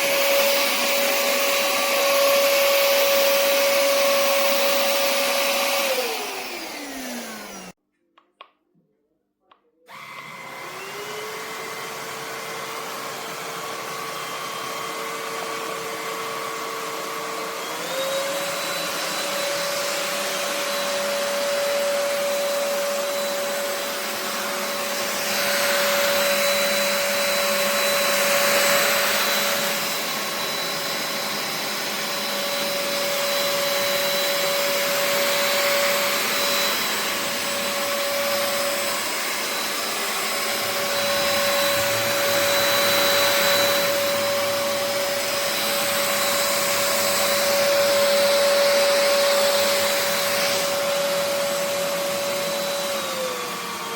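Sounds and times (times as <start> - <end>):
stick vacuum motor whining: 0.0 - 7.8, 9.9 - 53.9.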